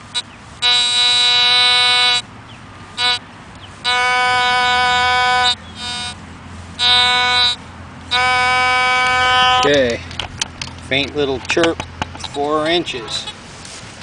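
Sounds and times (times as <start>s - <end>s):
metal detector buzzy tone: 0.1s - 2.2s, 3.0s - 3.2s, 3.8s - 6.2s, 6.8s - 9.9s, 12.3s - 13.4s.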